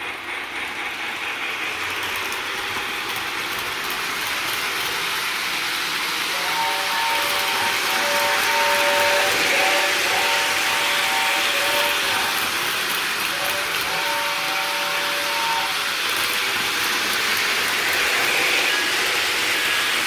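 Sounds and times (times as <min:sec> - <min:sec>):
toy steam train chuffing: 0:00.0 - 0:20.0
toy train whistle tones: 0:06.1 - 0:20.0.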